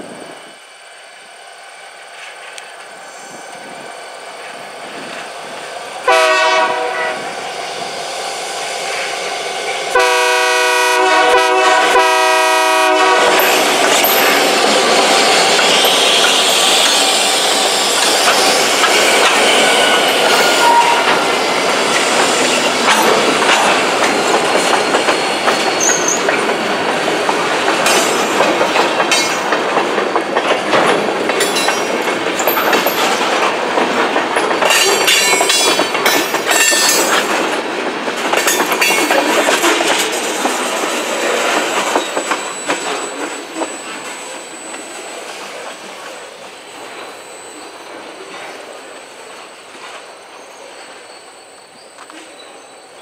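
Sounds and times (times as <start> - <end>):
train wheels clacking over rail joints: 10.0 - 46.2.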